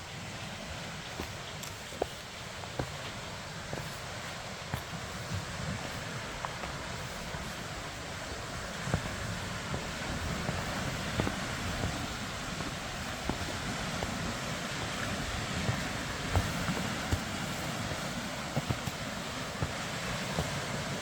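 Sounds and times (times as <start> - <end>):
steady wind: 0.0 - 21.0
faint light ticks: 1.1 - 2.1.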